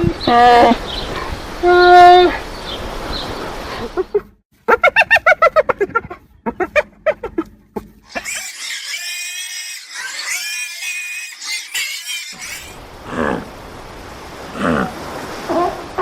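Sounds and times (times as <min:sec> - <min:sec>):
high drawn-out animal call: 0:08.1 - 0:12.8.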